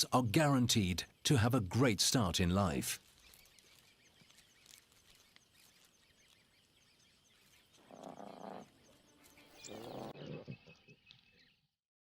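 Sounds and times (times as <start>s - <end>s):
high chirping: 3.2s - 11.4s
lion growl: 7.8s - 8.8s, 9.6s - 10.9s.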